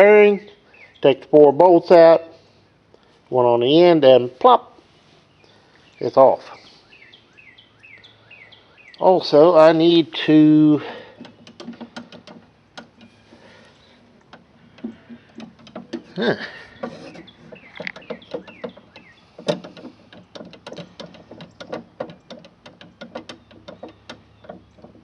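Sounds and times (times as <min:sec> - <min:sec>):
light clicks and knocks: 0:10.8 - 0:25.0.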